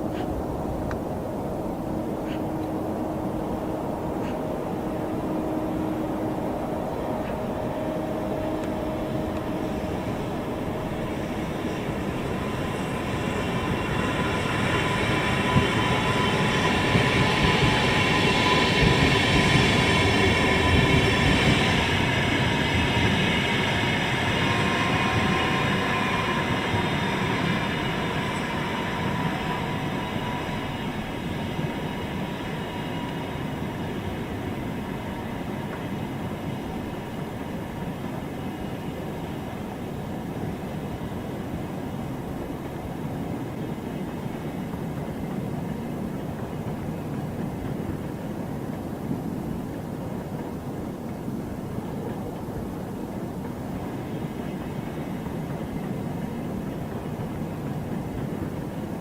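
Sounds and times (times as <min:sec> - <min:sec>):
electric train rumbling on rails: 0:00.0 - 0:59.0.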